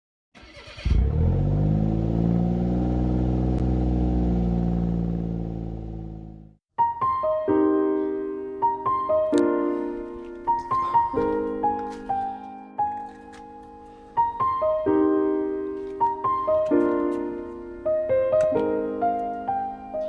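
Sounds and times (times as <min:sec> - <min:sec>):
car engine starting and idling: 0:00.4 - 0:06.6
piano music: 0:06.8 - 0:20.0.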